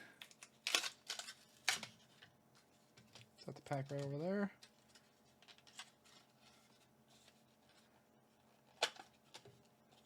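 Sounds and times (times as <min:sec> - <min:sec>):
packaging rustling: 0:00.2 - 0:02.2.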